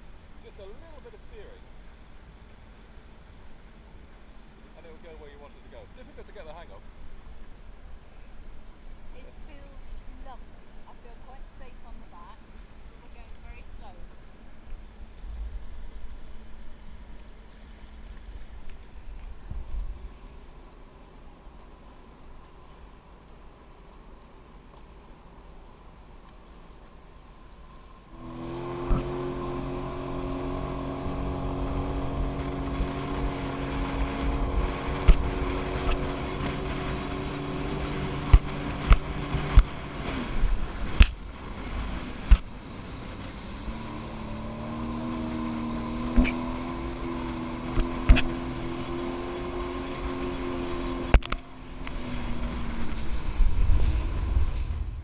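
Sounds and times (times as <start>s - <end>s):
jet ski engine droning: 0.0s - 55.0s
low rumble: 51.1s - 55.0s.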